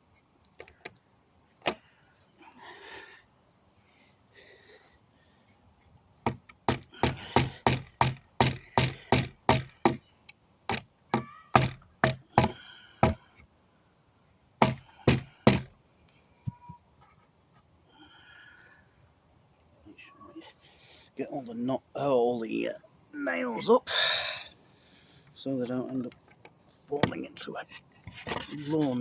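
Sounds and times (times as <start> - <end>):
hammer striking nails in wood: 6.3 - 10.1, 10.7 - 13.4, 14.6 - 15.8.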